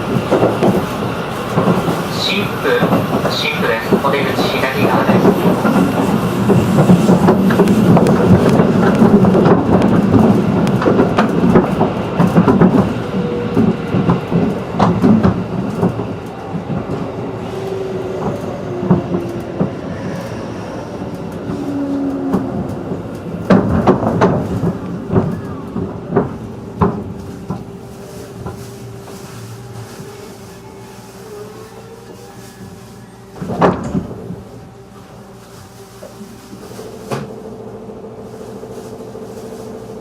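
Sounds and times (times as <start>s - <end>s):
train wheels clacking over rail joints: 0.0s - 31.3s.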